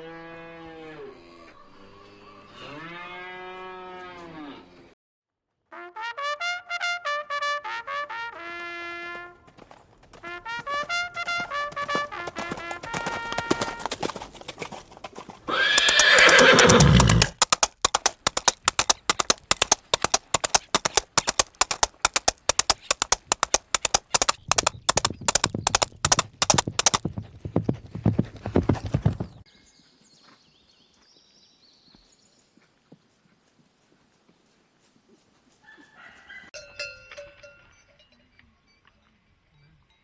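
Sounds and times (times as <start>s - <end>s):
hooves clip-clopping: 8.3s - 29.3s
horse whinnying: 15.5s - 17.7s.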